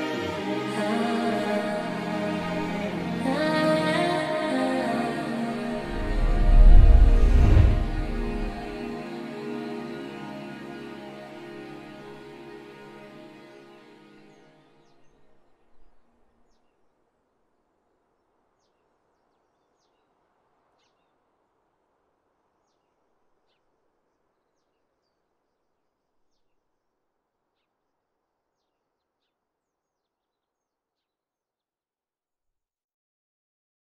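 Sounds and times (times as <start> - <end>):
soft outdoor hiss: 14.2 - 30.4.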